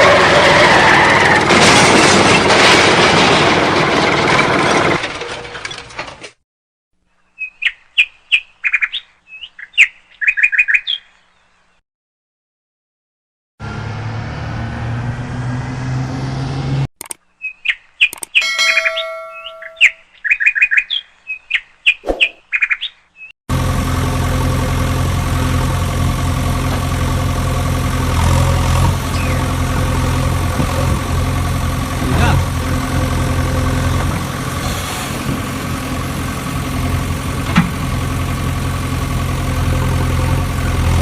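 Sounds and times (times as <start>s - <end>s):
engine drone: 13.6s - 16.9s, 23.5s - 41.0s
rapid short high chirps: 21.9s - 22.4s.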